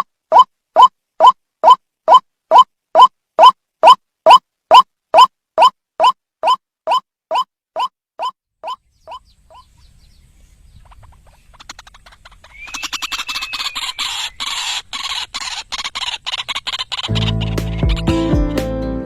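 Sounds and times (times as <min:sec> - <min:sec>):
bird harsh clicking calls: 0:00.0 - 0:10.0, 0:10.7 - 0:18.1
guitar music: 0:17.1 - 0:19.0.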